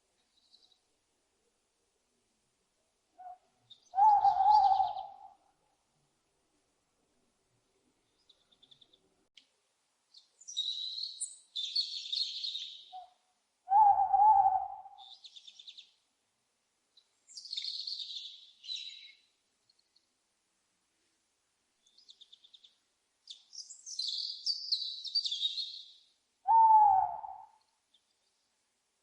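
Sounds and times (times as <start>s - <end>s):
owl call: 3.2s - 5.4s, 11.8s - 15.2s, 26.4s - 27.6s
small birds chirping and trilling: 8.0s - 9.1s, 10.1s - 13.1s, 15.0s - 16.0s, 16.9s - 20.1s, 21.8s - 26.2s.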